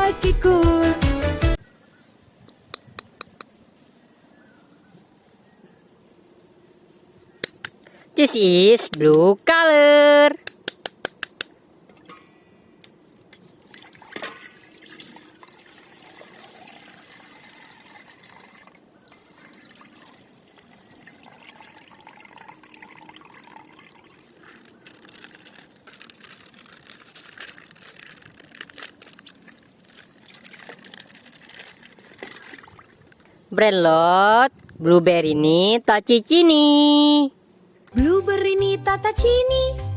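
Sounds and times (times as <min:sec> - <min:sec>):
plastic packaging crinkling: 0:24.3 - 0:32.9.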